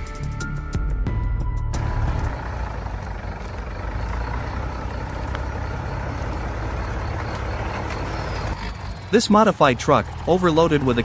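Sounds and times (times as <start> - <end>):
background music: 0.0 - 2.3
truck engine rumbling: 0.0 - 11.0.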